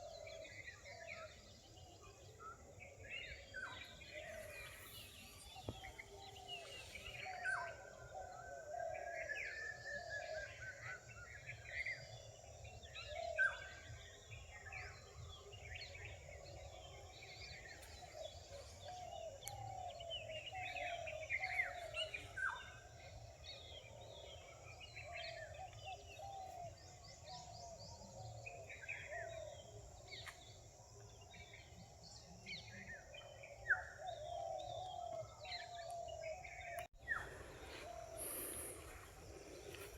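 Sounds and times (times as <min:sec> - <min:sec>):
birds chirping and whistling: 0:03.1 - 0:12.0, 0:33.2 - 0:39.9.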